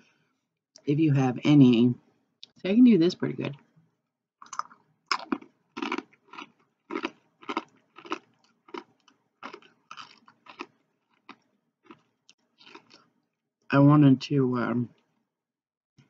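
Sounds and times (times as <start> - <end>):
person chewing crunchy food: 4.4 - 13.1.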